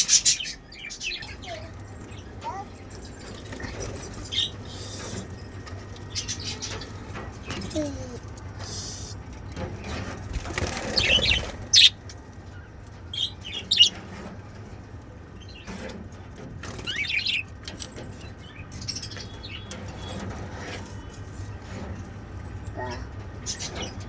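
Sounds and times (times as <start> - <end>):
budgerigars chirping: 0.0 - 7.2, 10.4 - 14.3, 16.7 - 17.5, 22.7 - 24.0.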